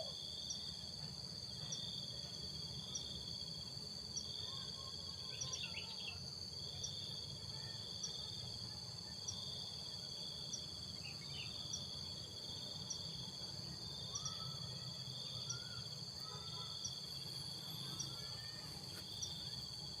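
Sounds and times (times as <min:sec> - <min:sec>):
crickets trilling: 0:00.0 - 0:20.0
faint bird calls: 0:14.1 - 0:19.6.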